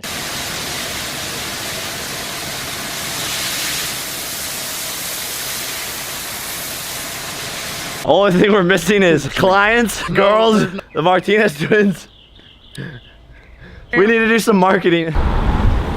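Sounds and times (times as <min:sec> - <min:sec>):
water spraying onto car: 0:00.0 - 0:08.1.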